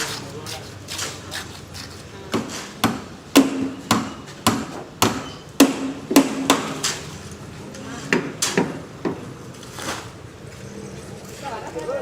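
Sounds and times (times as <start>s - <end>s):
hammer striking formwork: 0.0s - 7.0s.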